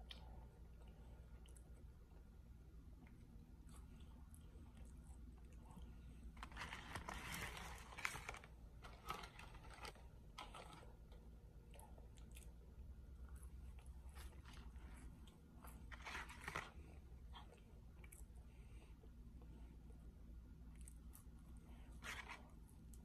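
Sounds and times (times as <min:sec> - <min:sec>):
small mouth and finger clicks: 0:00.0 - 0:01.7.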